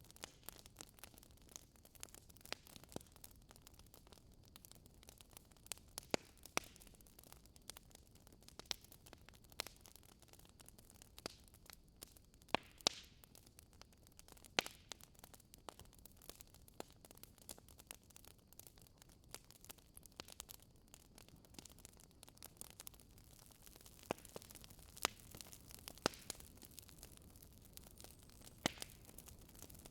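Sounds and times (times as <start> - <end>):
wood fire crackling and popping: 0.0 - 29.9
low hiss of fire: 22.5 - 29.9.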